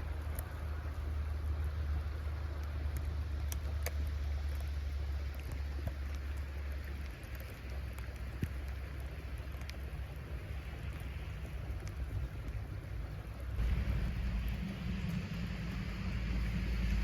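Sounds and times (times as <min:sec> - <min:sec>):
wind buffeting microphone: 0:09.8 - 0:17.0.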